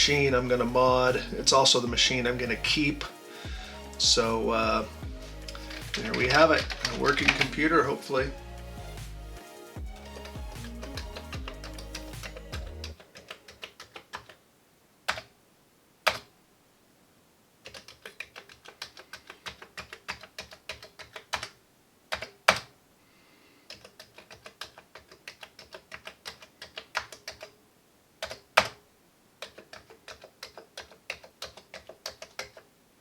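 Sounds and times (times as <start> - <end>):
keyboard key clicks: 16.1 - 16.3, 28.2 - 28.8, 29.4 - 32.6.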